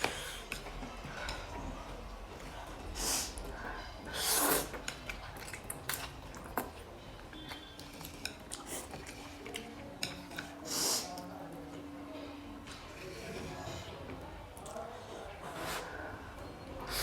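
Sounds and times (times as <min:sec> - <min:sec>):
utensils clinking against a bowl: 0:03.4 - 0:14.0.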